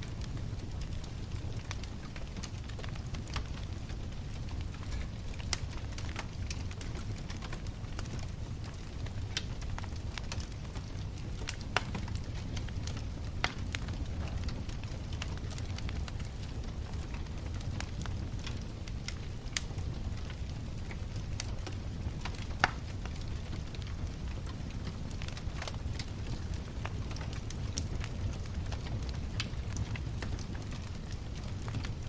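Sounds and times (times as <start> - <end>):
bonfire crackling and rumbling: 0.0 - 32.0
sharp pops of fire: 8.8 - 20.6, 21.4 - 24.2.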